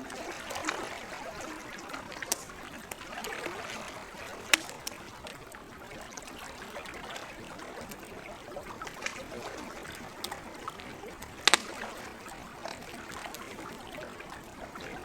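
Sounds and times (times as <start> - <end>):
campfire crackling: 0.0 - 15.0
water lapping: 0.0 - 15.0
sharp wood pops: 2.2 - 3.0, 3.8 - 5.1, 10.2 - 13.5.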